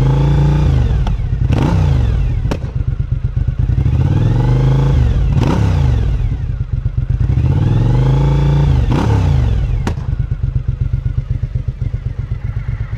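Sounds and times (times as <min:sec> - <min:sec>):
motorcycle engine revving: 0:00.0 - 0:12.9
exhaust backfire pop: 0:00.9 - 0:01.8, 0:02.4 - 0:03.0, 0:09.8 - 0:10.4.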